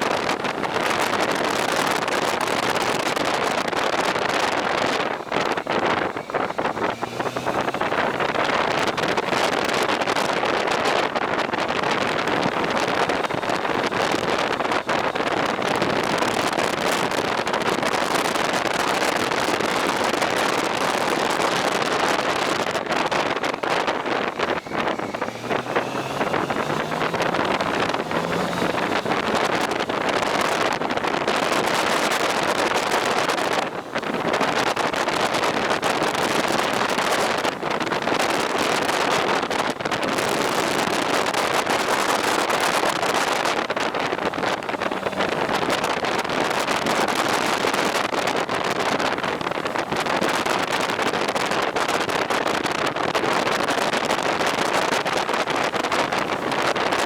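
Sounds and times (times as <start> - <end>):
wind rush over microphone: 0.0 - 57.0
faint engine rising in pitch: 5.3 - 10.2, 21.0 - 39.4.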